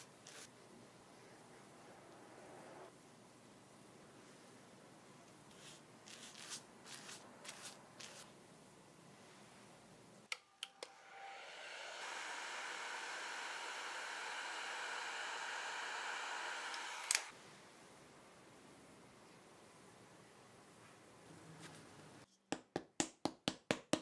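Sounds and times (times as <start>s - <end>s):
rustling strokes: 5.5s - 8.3s
small electric blower running: 10.9s - 17.3s.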